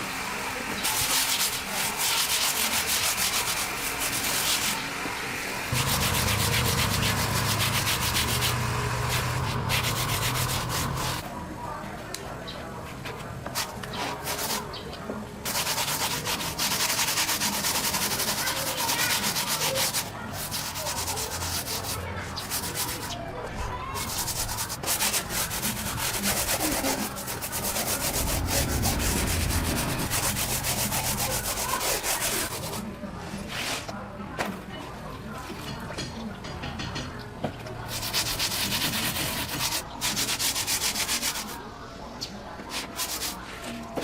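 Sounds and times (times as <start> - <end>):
sanding on metal: 0.6 - 4.8, 5.7 - 11.2, 15.4 - 23.2, 24.0 - 32.8, 37.9 - 41.6, 42.7 - 43.6.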